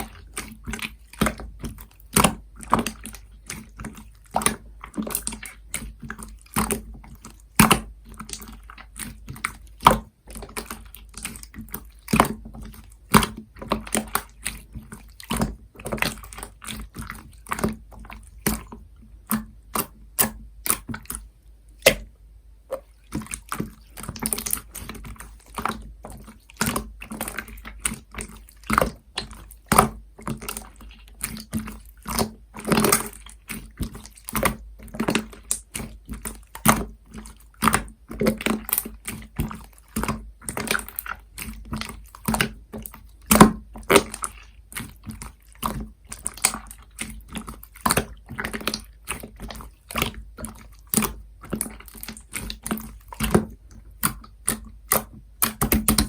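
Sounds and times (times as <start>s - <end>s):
slime squeezed with wet clicks: 15.2s - 21.2s, 22.7s - 56.0s.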